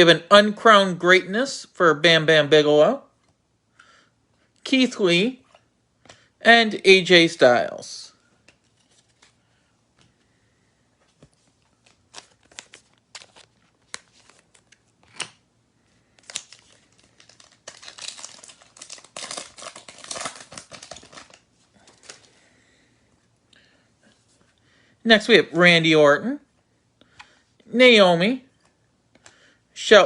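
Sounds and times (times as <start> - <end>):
wrapper crinkling and tearing: 11.7 - 15.4, 16.1 - 22.4.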